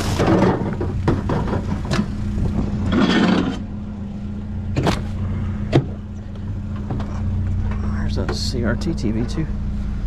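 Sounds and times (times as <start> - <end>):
junk items scraping: 0.0 - 3.7
vehicle engine idling: 0.0 - 10.0
sharp knocks and clatters: 0.1 - 2.1.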